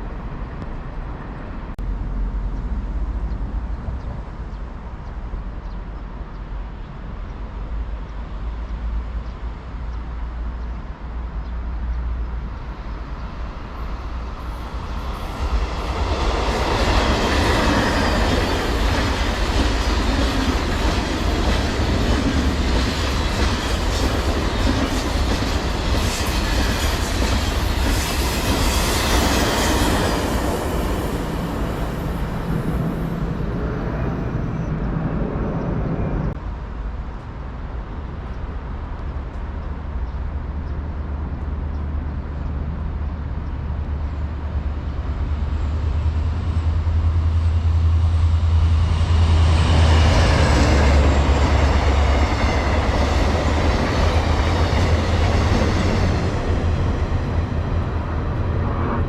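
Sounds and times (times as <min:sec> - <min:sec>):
train wheels clattering on rails: 0:13.2 - 0:33.3, 0:45.9 - 0:58.5
steady low rumble: 0:30.2 - 0:59.0.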